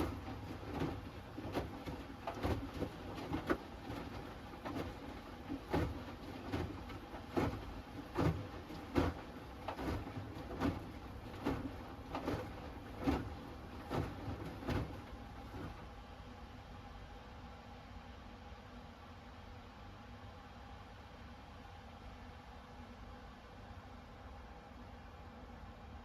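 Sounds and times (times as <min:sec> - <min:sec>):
laundry thumping and sloshing: 0:00.0 - 0:16.0
washing machine hum: 0:00.0 - 0:26.0.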